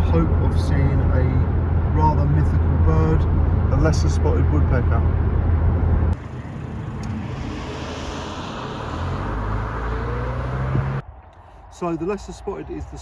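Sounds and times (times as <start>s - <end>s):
car road and engine noise: 0.0s - 11.3s
faint rising whine: 4.8s - 11.0s.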